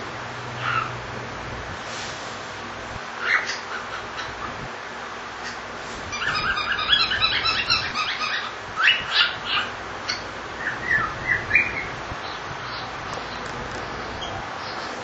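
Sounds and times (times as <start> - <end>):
cockatiel whistling and chirping: 6.2 - 11.9.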